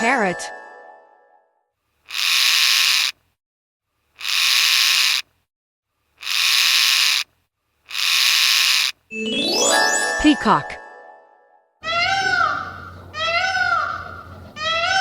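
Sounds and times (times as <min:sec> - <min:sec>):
parrot screeching: 0:02.1 - 0:03.1, 0:04.2 - 0:05.2, 0:06.2 - 0:07.2, 0:07.9 - 0:09.0, 0:11.8 - 0:15.0.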